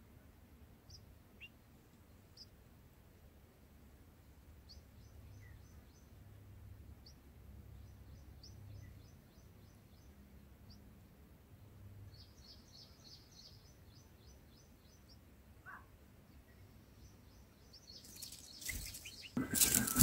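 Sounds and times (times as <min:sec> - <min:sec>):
high bird chirps: 0:17.8 - 0:20.0.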